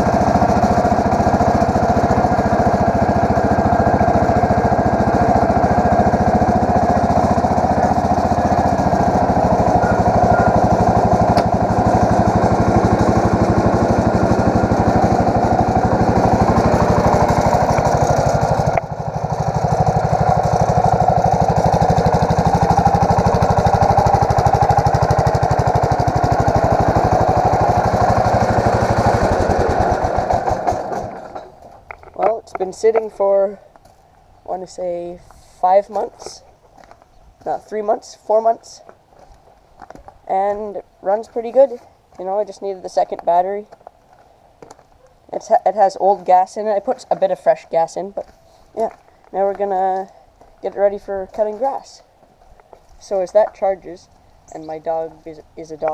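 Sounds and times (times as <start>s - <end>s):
garden tractor engine running: 0.0s - 55.9s.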